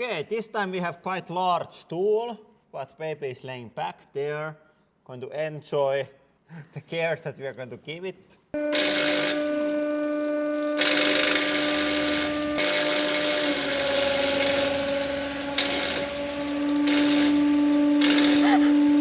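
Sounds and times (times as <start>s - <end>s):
angle grinder whining: 8.6s - 19.0s.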